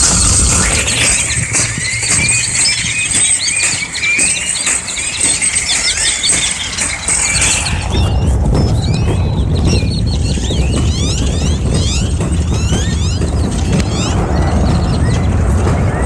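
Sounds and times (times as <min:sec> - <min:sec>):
low rumble: 0:00.0 - 0:03.3, 0:07.0 - 0:16.0
flock of birds chirping: 0:00.0 - 0:16.0.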